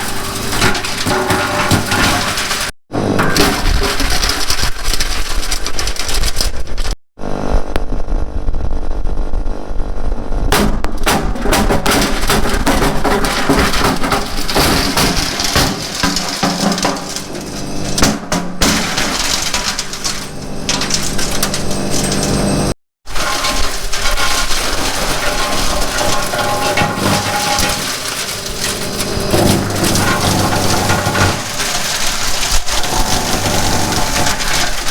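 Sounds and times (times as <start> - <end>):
wood chipper motor droning: 13.2 - 18.0, 18.8 - 34.9.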